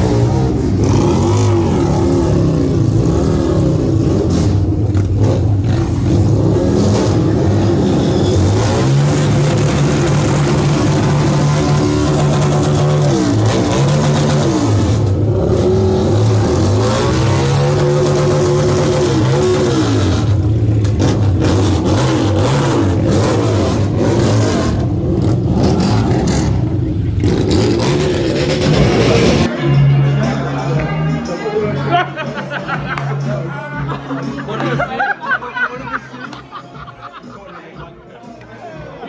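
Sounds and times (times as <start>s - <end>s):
motorcycle engine accelerating: 0.0s - 29.5s
steady rushing noise: 23.7s - 29.5s.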